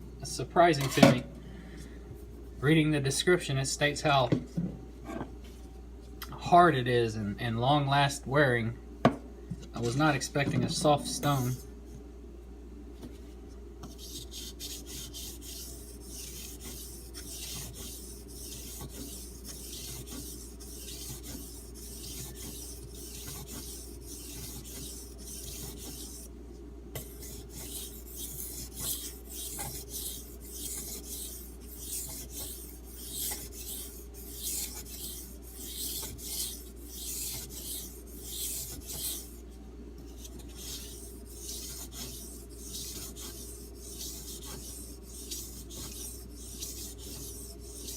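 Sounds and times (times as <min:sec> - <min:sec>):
knife scraping on whetstone: 0:13.8 - 0:26.3, 0:27.0 - 0:39.4, 0:40.2 - 0:47.9.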